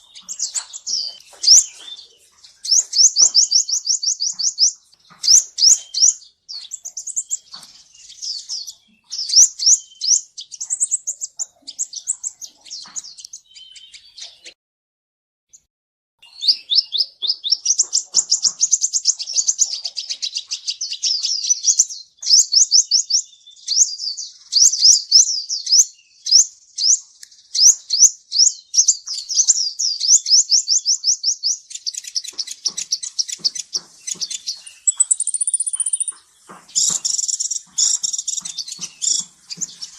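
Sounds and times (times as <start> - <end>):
sunbird singing high chirps: 0.0 - 14.6, 16.2 - 39.9.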